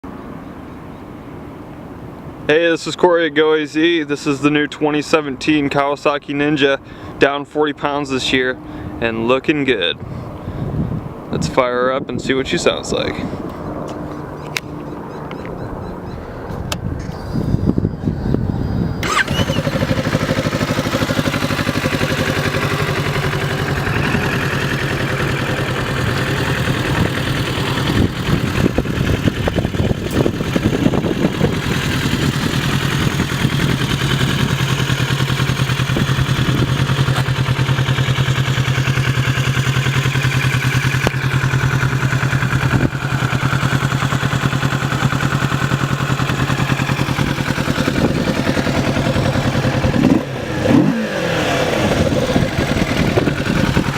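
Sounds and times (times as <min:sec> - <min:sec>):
motorcycle engine starting: 0:18.3 - 0:53.9
motorcycle engine idling: 0:18.4 - 0:53.9
engine throttle revs: 0:19.0 - 0:53.9.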